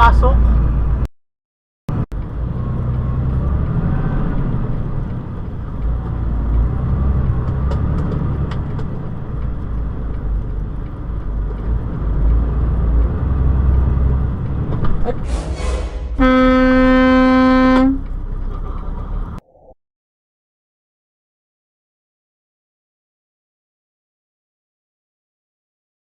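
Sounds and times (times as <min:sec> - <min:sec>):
vehicle engine and road noise: 0:00.0 - 0:01.1, 0:01.9 - 0:19.4.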